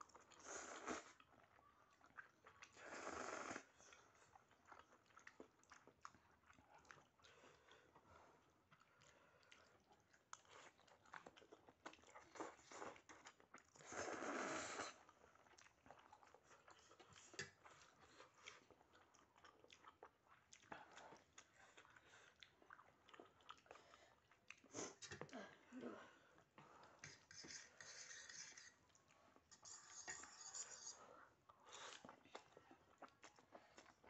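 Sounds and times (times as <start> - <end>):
wet chewing clicks and smacks: 3.8 - 13.8, 15.0 - 25.2, 31.5 - 34.0.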